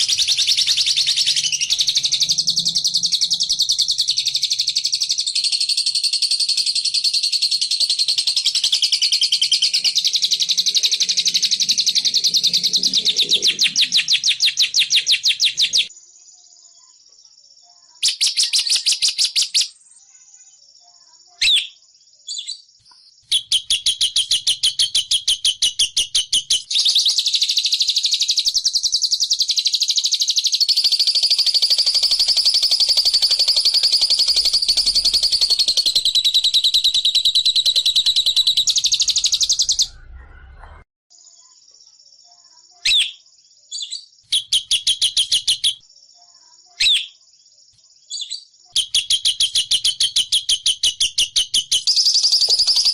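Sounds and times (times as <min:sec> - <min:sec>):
lovebird long trill: 0:00.0 - 0:06.1, 0:30.7 - 0:40.2
lovebird chirping: 0:00.0 - 0:17.0, 0:17.8 - 0:41.6, 0:42.3 - 0:47.2, 0:48.1 - 0:52.9.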